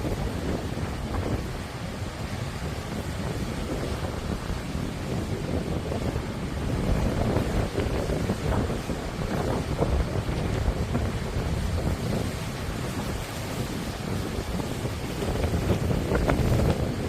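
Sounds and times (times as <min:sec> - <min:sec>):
sea waves washing onto shore: 0:00.0 - 0:17.0
wind buffeting microphone: 0:00.0 - 0:17.0.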